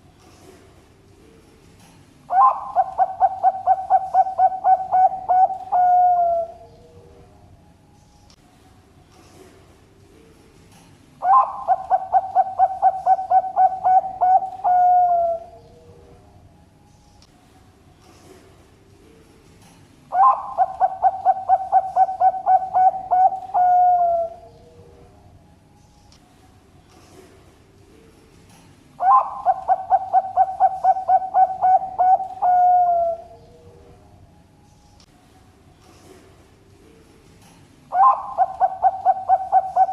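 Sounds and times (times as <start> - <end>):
dove cooing: 2.3 - 7.2, 11.2 - 16.2, 20.1 - 25.2, 29.0 - 34.0, 37.9 - 39.9.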